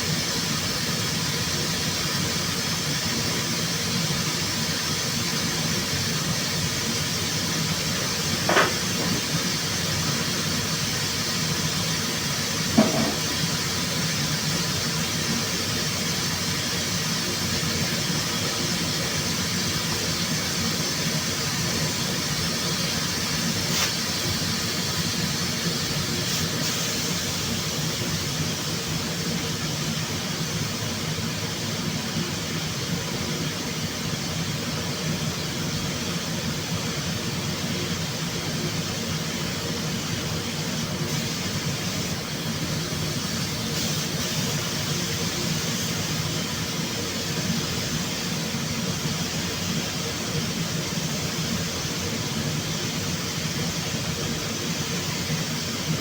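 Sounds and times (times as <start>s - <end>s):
rushing air hiss: 20.4s - 28.6s.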